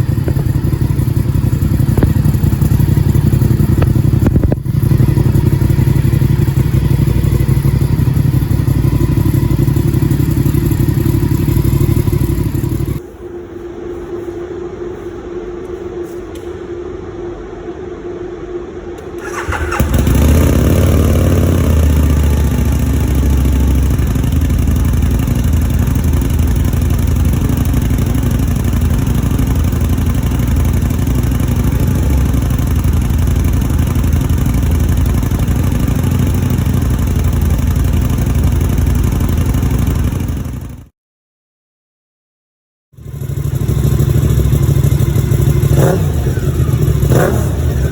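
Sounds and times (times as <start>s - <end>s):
motorcycle idling: 0.0s - 13.1s, 19.2s - 40.9s, 43.0s - 47.9s
engine starting: 19.1s - 20.6s.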